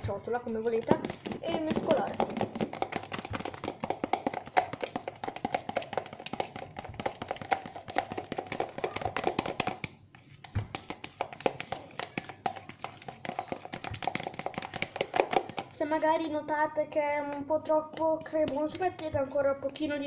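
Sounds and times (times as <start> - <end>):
utensil tapping against a bowl: 0.8 - 15.7.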